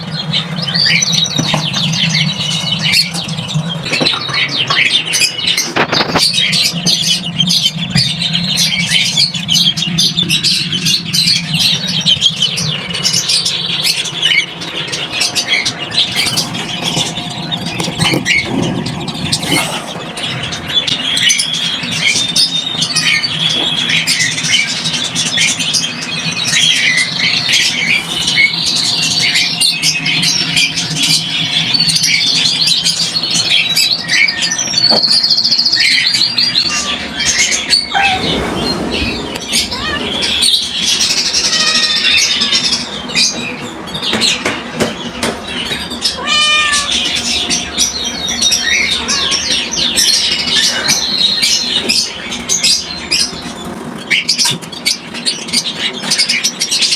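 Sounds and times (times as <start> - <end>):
drawn-out bird calls: 0.0 - 21.9
small birds chirping: 0.0 - 56.9.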